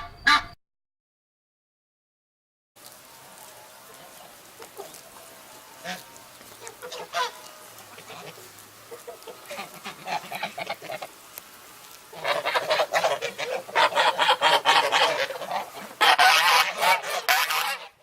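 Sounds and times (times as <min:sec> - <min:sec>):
geese honking: 0:00.0 - 0:00.6, 0:03.1 - 0:18.0.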